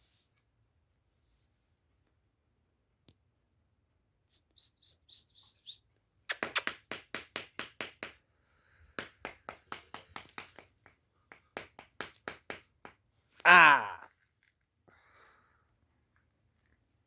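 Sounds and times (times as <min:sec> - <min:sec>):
short high-pitched animal calls: 0:04.3 - 0:06.7.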